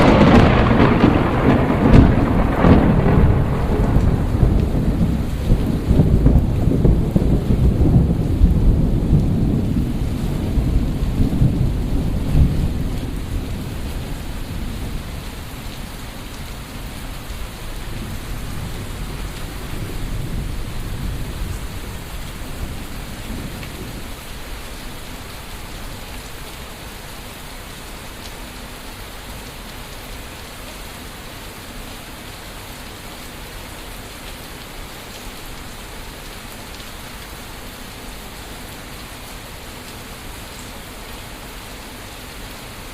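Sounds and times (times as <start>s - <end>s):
thunder rumbling: 0.0s - 26.3s
rain falling: 0.0s - 42.9s.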